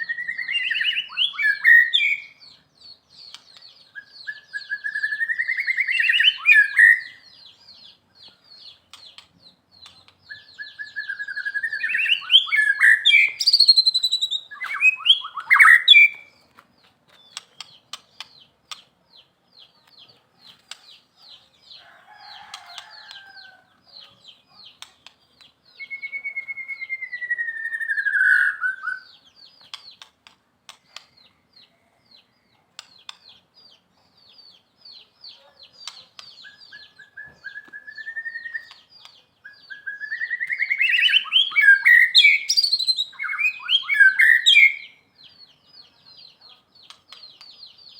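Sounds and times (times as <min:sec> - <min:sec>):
bird whistled song: 0:00.0 - 0:02.6, 0:03.2 - 0:08.0, 0:09.8 - 0:16.4, 0:25.6 - 0:30.1, 0:34.4 - 0:45.9.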